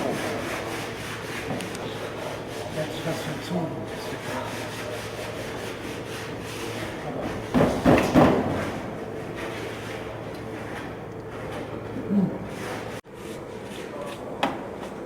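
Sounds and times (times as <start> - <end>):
rubbing and handling wood: 0.0 - 14.2
loud knocks on wood: 7.5 - 8.7.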